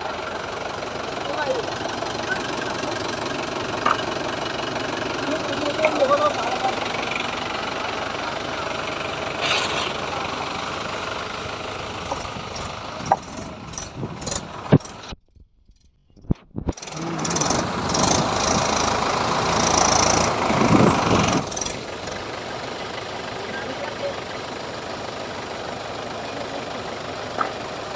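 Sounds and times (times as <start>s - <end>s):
tractor diesel engine running: 0.0s - 27.9s.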